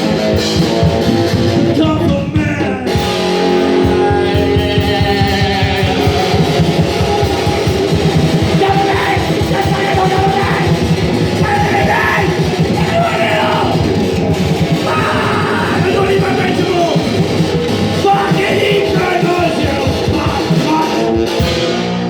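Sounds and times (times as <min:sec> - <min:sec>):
fast dense drumming: 0:00.0 - 0:21.9
distorted guitars: 0:00.0 - 0:22.0
shouted vocals: 0:01.8 - 0:03.1, 0:03.8 - 0:21.1.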